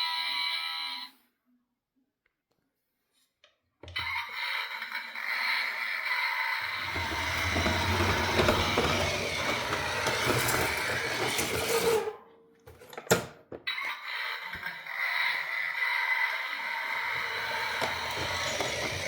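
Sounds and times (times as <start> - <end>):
toy truck motor whirring: 4.0 - 12.2, 13.8 - 19.0.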